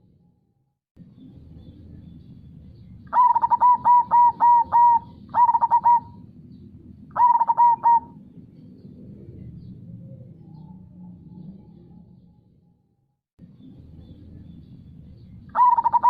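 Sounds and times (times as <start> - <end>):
dove cooing: 3.1 - 6.3, 7.1 - 8.2, 15.5 - 16.0.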